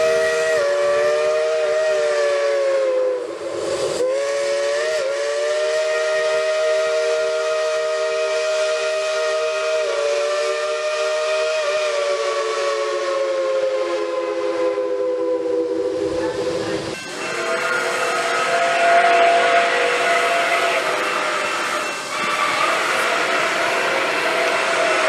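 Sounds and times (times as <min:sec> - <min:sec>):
steam hiss: 0:00.0 - 0:25.0
steam locomotive chime whistle: 0:00.0 - 0:25.0
steam locomotive whistle blowing: 0:00.0 - 0:25.0.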